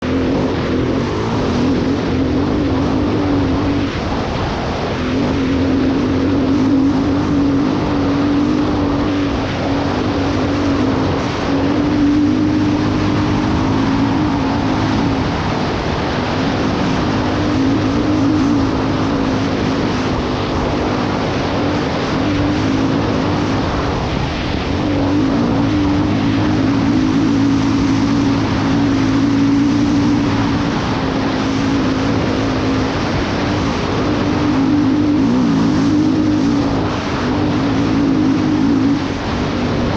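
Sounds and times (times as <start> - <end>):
constant rushing hiss: 0.0 - 39.9
motorcycle engine at high revs: 0.0 - 39.9.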